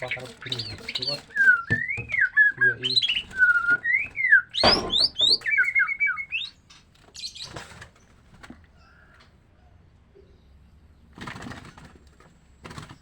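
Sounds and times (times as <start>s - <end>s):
bird singing whistled phrases: 0.0s - 6.6s
loud thump or flutter: 4.6s - 5.1s.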